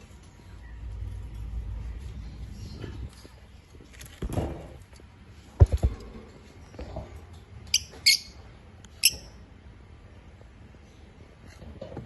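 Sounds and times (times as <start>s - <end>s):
lovebirds chirping: 7.7s - 9.4s.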